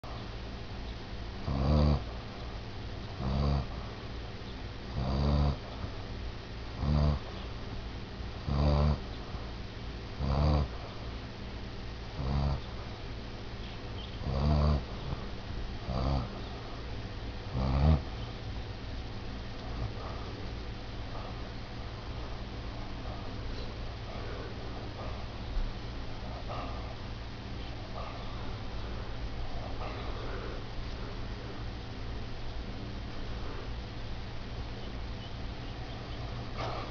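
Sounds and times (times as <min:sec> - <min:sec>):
dog snoring: 0:01.4 - 0:02.4, 0:03.2 - 0:04.0, 0:04.9 - 0:06.0, 0:06.7 - 0:07.4, 0:08.4 - 0:09.4, 0:10.2 - 0:11.1, 0:12.1 - 0:13.0, 0:14.2 - 0:16.8, 0:17.5 - 0:18.2, 0:19.6 - 0:20.5, 0:21.1 - 0:25.4, 0:26.2 - 0:27.0, 0:27.6 - 0:31.7, 0:36.1 - 0:36.9.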